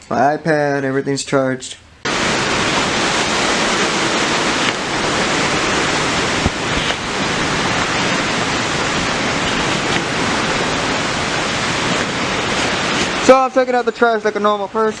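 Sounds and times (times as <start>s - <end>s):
heavy rain and wind: 2.0s - 15.0s.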